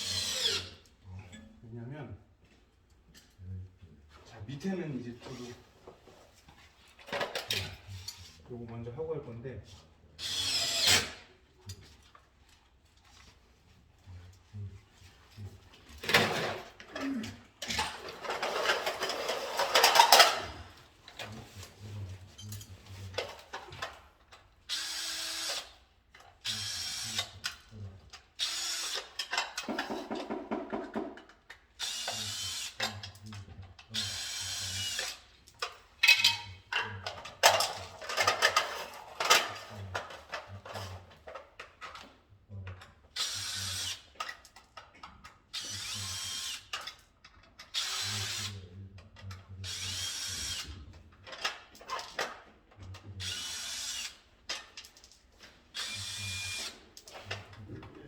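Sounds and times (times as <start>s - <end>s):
cordless drill driving screws: 0.0s - 0.8s, 10.2s - 11.2s, 24.7s - 25.8s, 26.4s - 27.4s, 28.4s - 29.3s, 31.8s - 33.0s, 33.9s - 35.3s, 43.2s - 44.3s, 45.5s - 47.0s, 47.7s - 48.6s, 49.6s - 50.8s, 53.2s - 54.2s, 55.7s - 57.1s.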